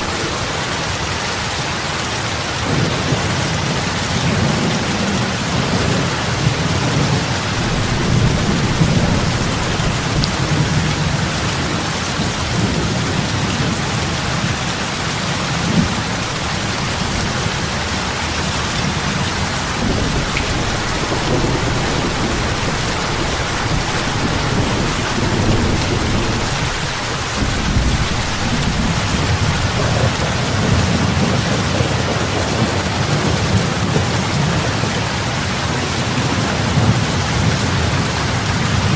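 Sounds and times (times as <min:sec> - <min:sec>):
heavy rain on water: 0:00.0 - 0:38.9
low rumble: 0:07.2 - 0:11.6.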